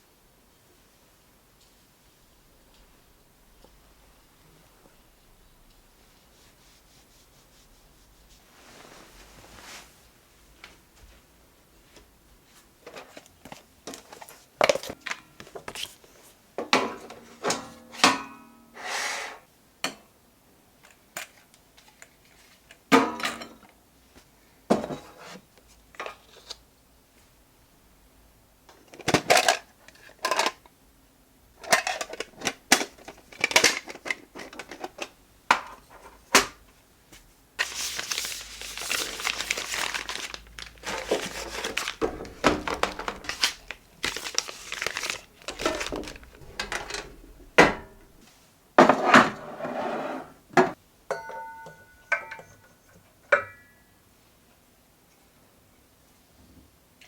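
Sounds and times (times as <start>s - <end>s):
packaging crinkling: 37.6s - 47.5s.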